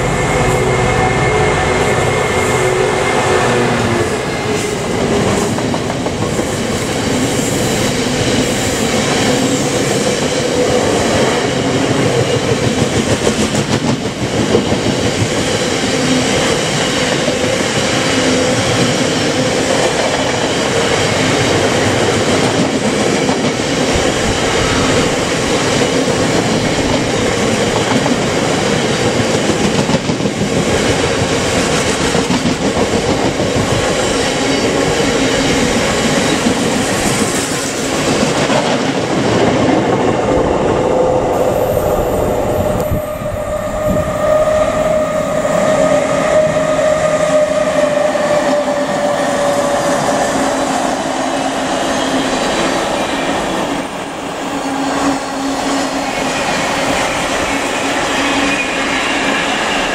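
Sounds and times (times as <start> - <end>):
train wheels rumbling on rails: 0.0 - 59.9
clickety-clack over rail joints: 3.7 - 40.4.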